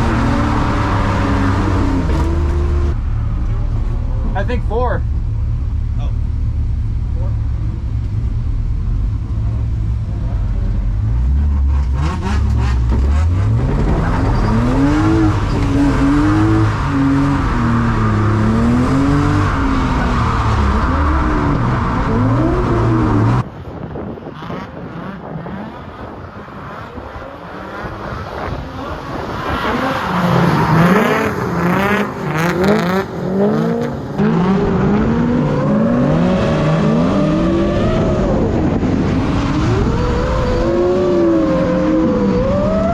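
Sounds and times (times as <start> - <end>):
car engine revving hard: 11.0 - 23.4, 24.4 - 42.9
tyre squeal: 13.9 - 18.2.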